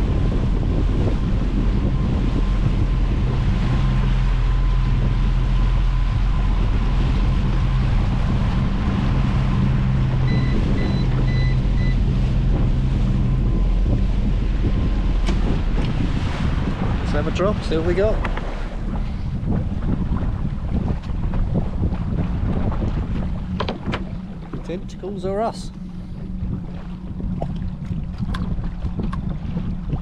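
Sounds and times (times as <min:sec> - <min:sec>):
boat engine running: 0:00.0 - 0:30.0
water rushing past hull: 0:00.0 - 0:30.0
wind buffeting microphone: 0:00.0 - 0:30.0.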